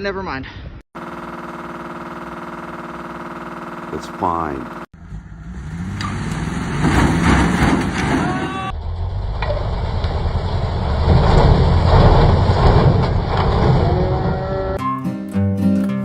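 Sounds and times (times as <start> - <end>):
loud rough vehicle noise: 1.0 - 14.8.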